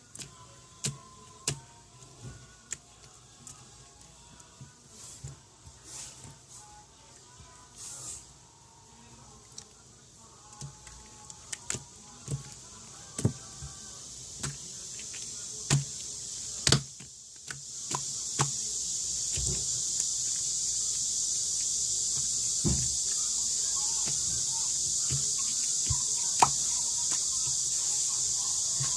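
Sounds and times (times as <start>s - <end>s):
high hiss: 4.9s - 9.1s, 12.0s - 28.9s.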